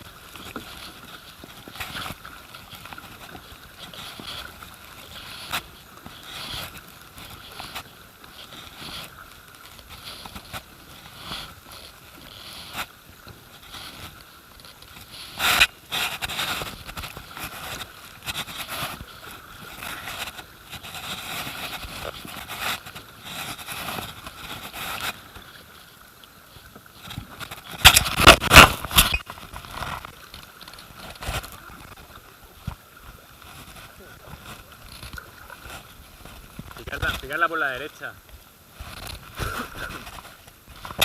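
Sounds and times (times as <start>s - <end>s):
paddle handling: 0.0s - 41.0s
river water noise: 0.0s - 41.0s
water splashes: 0.0s - 41.0s.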